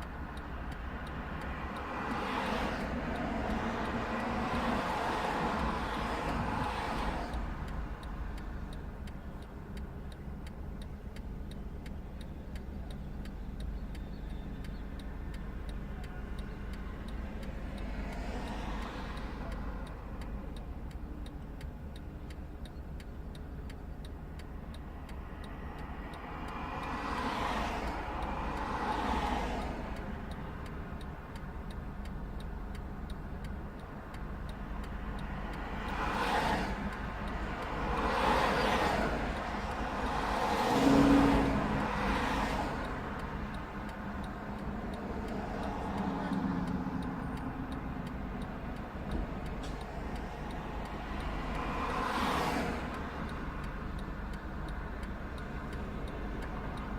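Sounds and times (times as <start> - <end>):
engine rumble: 0.0 - 56.9
vehicles passing by: 0.0 - 56.9
fast regular ticking: 2.8 - 40.8, 41.6 - 56.9.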